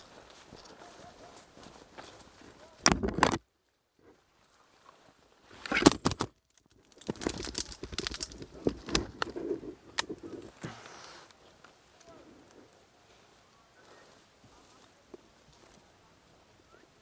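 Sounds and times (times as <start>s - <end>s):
rustling and clicking: 0.0s - 4.2s, 5.6s - 12.8s.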